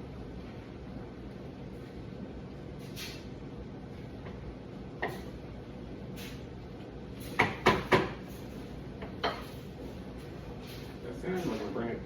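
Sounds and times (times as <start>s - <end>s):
steady background hum: 0.0s - 12.0s
kitchen knocks: 7.4s - 8.2s.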